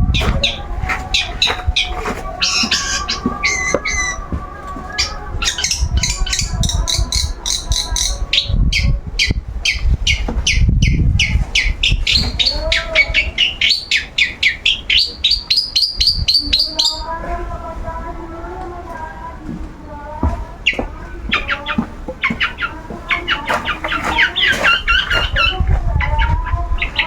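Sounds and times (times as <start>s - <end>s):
bird singing high chirps: 0.0s - 17.1s, 20.6s - 27.0s.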